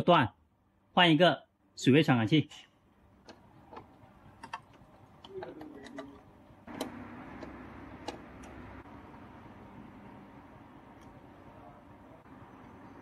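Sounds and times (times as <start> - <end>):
plastic parts clicking and knocking: 3.2 - 8.6.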